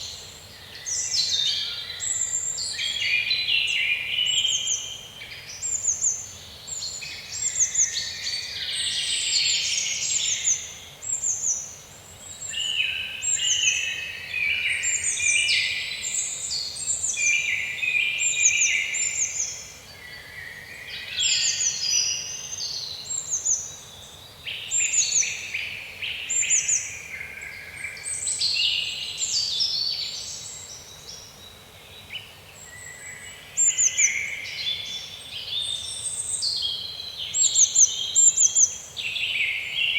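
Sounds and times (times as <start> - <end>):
bird varied song: 0.0 - 39.9.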